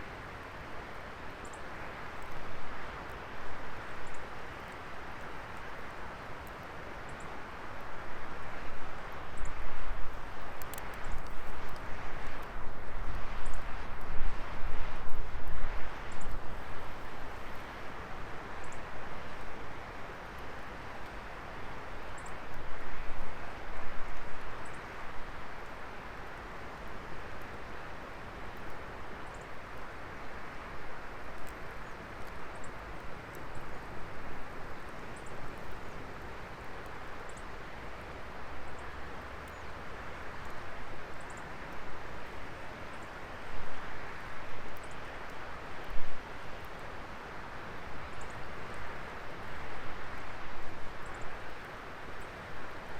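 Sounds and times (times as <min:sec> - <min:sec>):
wood fire crackling: 0:10.0 - 0:14.4, 0:29.8 - 0:37.6.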